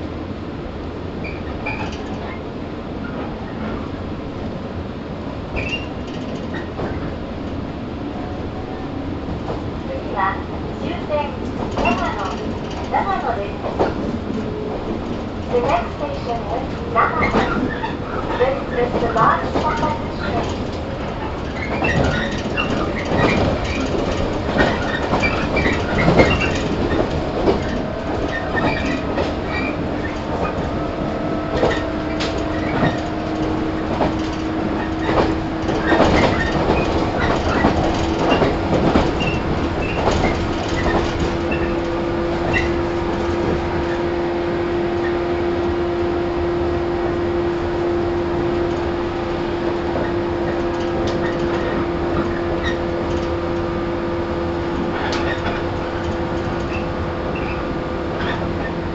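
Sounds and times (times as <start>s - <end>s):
train rumble: 0.0s - 58.9s
wheels clacking over track: 9.4s - 44.1s, 48.4s - 58.9s.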